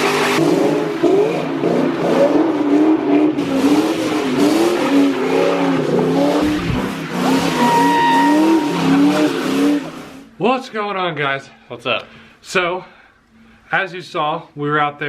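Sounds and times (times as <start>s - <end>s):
car engine revving: 0.1s - 10.2s.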